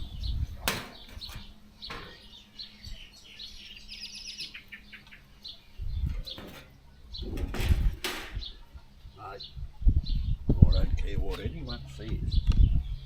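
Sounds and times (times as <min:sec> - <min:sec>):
small birds chirping: 0:00.0 - 0:13.0
bird trill: 0:00.9 - 0:07.4.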